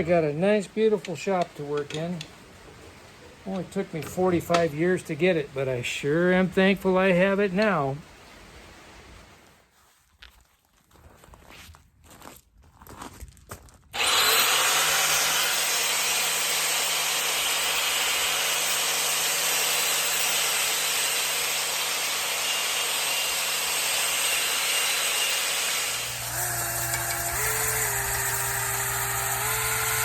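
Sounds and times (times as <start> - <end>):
power tool rasping on metal: 14.0 - 30.0.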